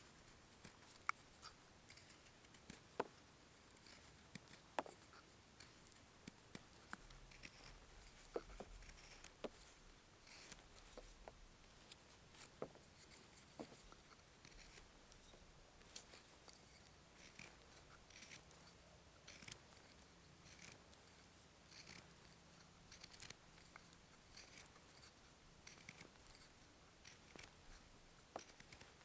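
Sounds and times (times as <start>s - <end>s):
quiet hiss: 0.0s - 29.0s
faint small clicks: 0.2s - 3.2s.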